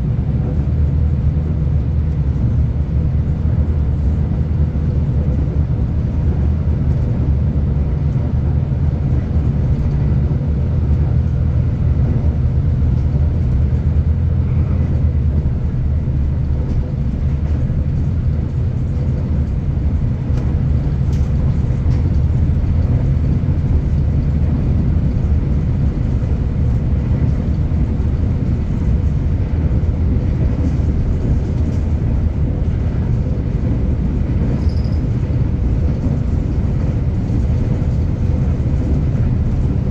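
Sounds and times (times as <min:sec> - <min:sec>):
train rumble inside carriage: 0:00.0 - 0:39.9.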